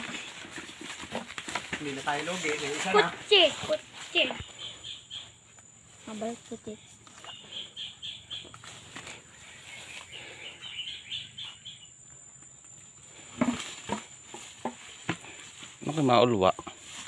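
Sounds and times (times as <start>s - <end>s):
high insect drone: 0.0s - 17.0s
bird chirping: 2.4s - 13.3s.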